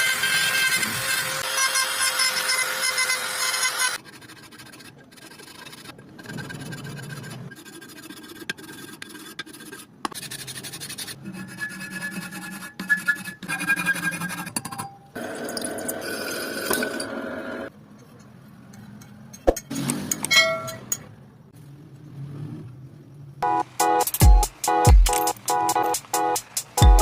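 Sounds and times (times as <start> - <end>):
scraping rubbing and filing: 3.2 - 14.8.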